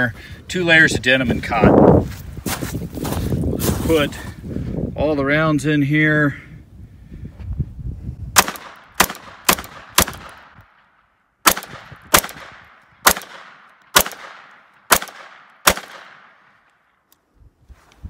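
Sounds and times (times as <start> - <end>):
pistol shots: 8.4 - 16.7.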